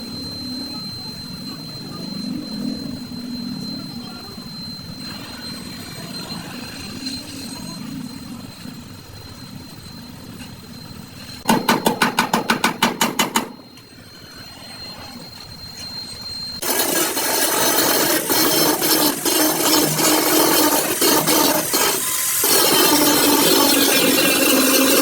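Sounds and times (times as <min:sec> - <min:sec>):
low workshop hum: 0:00.0 - 0:25.0
rapid sharp strikes on metal: 0:11.5 - 0:13.6.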